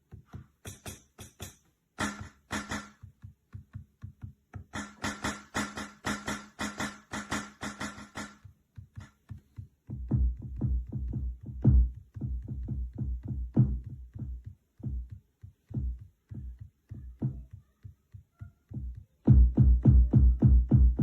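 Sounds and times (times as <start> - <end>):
electronic kick drum hits: 9.9 - 15.1, 18.7 - 21.0.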